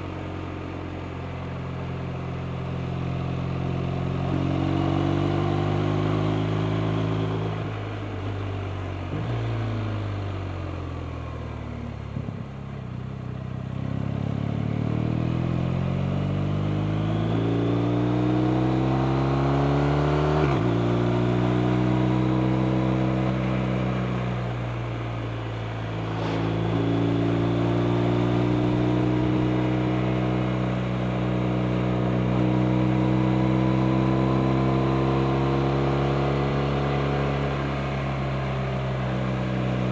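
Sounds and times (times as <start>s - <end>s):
motorcycle engine under way: 11.7s - 39.9s.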